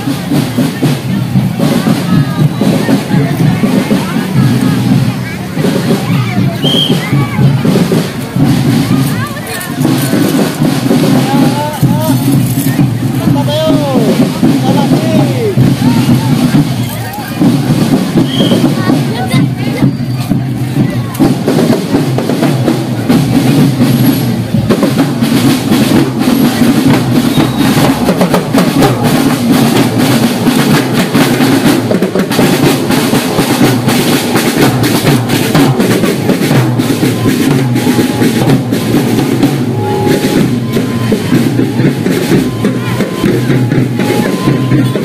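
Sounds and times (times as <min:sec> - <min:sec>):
bass drums beating: 0:00.0 - 0:45.0
snare drum rolls: 0:00.0 - 0:45.0.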